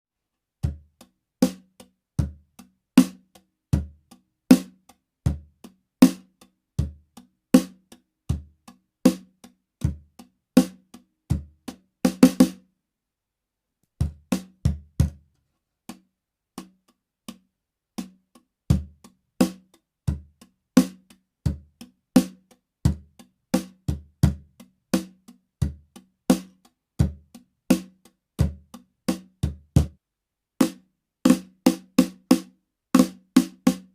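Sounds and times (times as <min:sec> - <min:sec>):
drums playing a groove: 0:00.6 - 0:12.6, 0:14.0 - 0:15.2, 0:18.0 - 0:30.0, 0:30.6 - 0:33.9.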